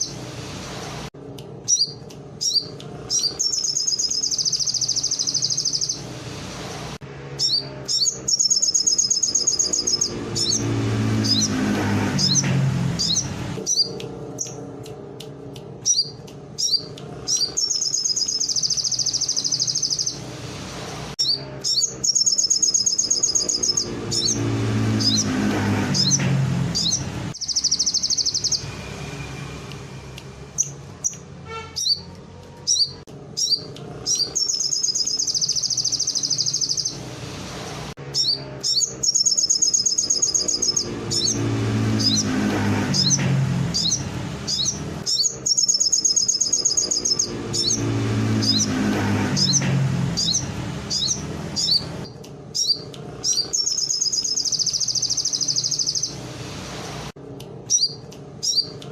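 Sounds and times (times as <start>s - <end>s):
songbird singing fast trills: 1.7s - 6.0s, 7.4s - 11.6s, 15.8s - 20.2s, 21.2s - 25.3s, 26.8s - 28.8s, 32.7s - 37.0s, 38.2s - 42.3s, 43.0s - 48.8s, 50.2s - 56.2s.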